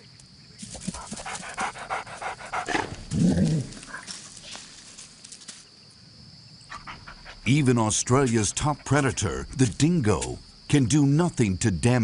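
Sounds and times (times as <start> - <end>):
dog panting and sniffing: 0.8 - 3.1, 6.7 - 7.5.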